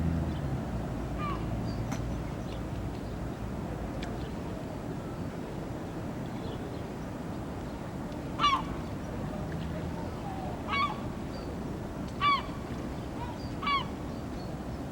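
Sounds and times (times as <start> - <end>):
low background noise: 0.0 - 14.9
gulls calling: 8.4 - 8.9, 10.1 - 11.2, 12.1 - 14.0.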